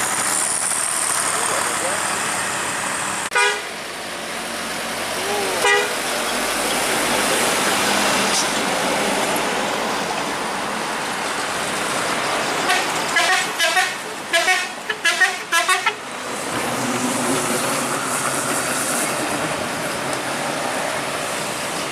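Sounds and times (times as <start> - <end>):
passing trucks traffic noise: 0.0 - 21.9
vehicle horn short toots: 3.3 - 3.7, 5.6 - 6.0.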